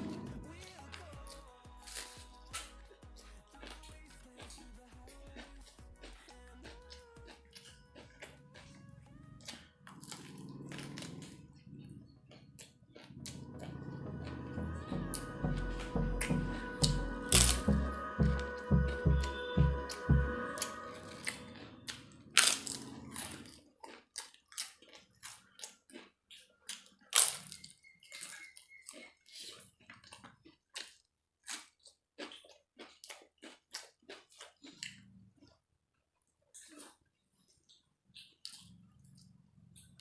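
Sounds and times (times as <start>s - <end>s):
person chewing crunchy food: 0.0s - 40.0s
low hum: 13.1s - 22.8s
wet mouth smacks while chewing: 36.5s - 39.9s.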